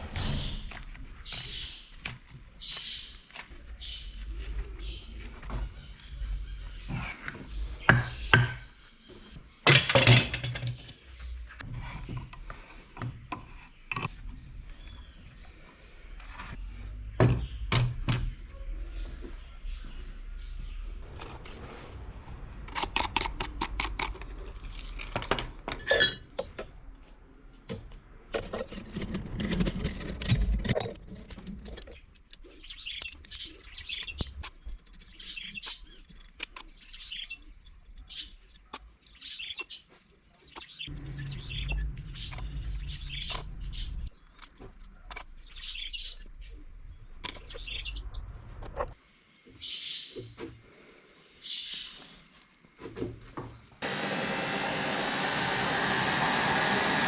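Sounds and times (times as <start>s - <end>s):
bird chirping: 31.9s - 48.5s.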